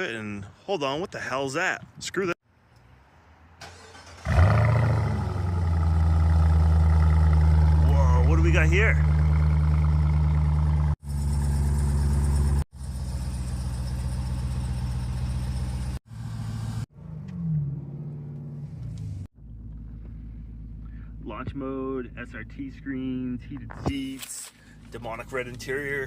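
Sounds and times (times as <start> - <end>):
car engine idling loud and deep: 5.5 - 16.3, 19.4 - 23.6.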